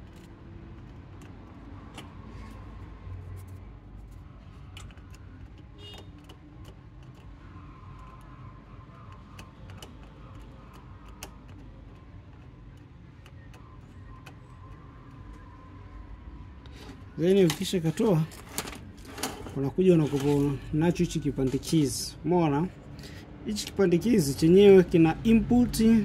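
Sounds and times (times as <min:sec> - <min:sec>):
hand tools clicking and tapping: 0:04.6 - 0:15.5.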